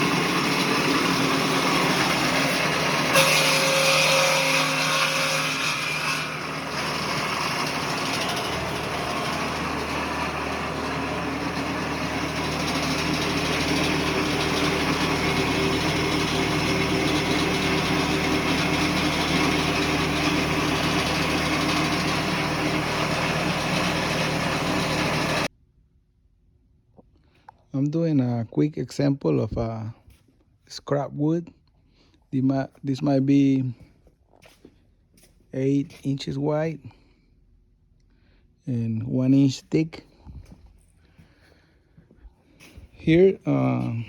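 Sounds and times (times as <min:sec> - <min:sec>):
electric sawmill edger humming: 0:00.0 - 0:25.5, 0:42.6 - 0:44.0.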